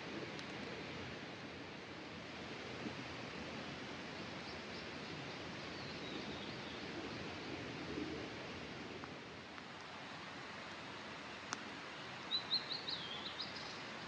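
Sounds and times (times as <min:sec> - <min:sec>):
river flowing: 0:00.0 - 0:14.0
faint bird chirps: 0:12.0 - 0:14.0.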